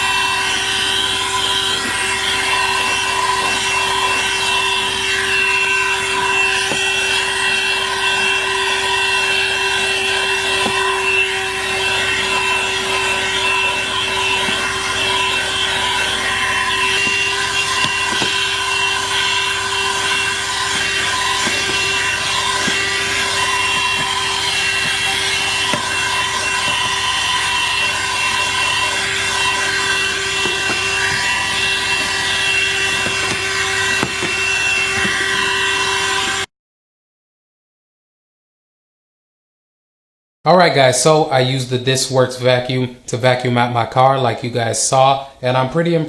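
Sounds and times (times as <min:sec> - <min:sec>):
car vacuum motor whine: 0:00.0 - 0:36.5.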